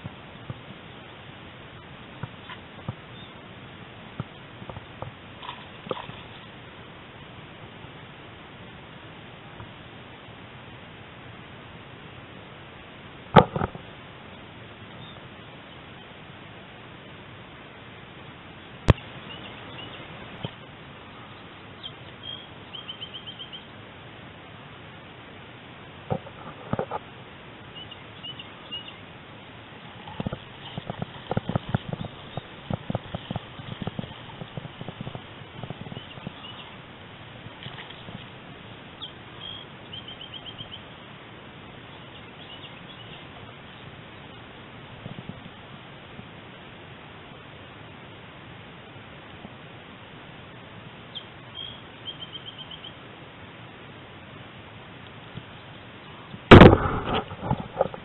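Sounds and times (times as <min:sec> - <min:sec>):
outdoor hiss: 0:00.0 - 0:57.9
small bird chirping: 0:21.1 - 0:23.7, 0:27.7 - 0:29.0, 0:29.8 - 0:36.8, 0:39.0 - 0:40.9, 0:51.1 - 0:53.0.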